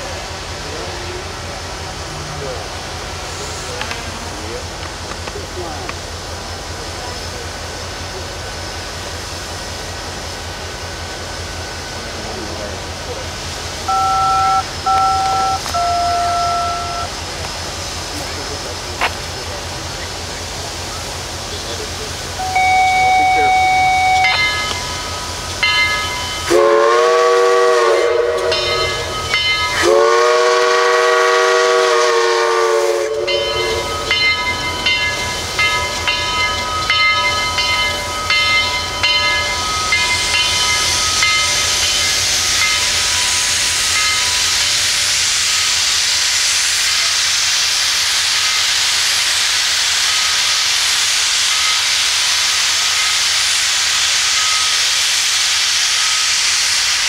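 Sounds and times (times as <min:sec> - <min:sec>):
steam venting hiss: 0:00.0 - 0:57.0
steam whistle blasts: 0:13.9 - 0:17.1, 0:22.4 - 0:24.4, 0:26.4 - 0:29.1, 0:29.7 - 0:33.8.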